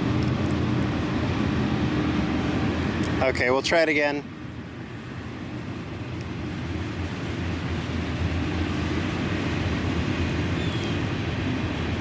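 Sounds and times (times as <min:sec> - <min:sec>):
distant vehicle rumble: 0:00.0 - 0:12.0.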